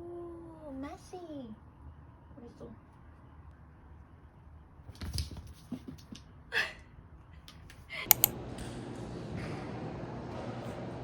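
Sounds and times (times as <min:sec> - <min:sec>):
steady mechanical hum: 0:07.0 - 0:11.0
clicks and taps: 0:08.1 - 0:08.3.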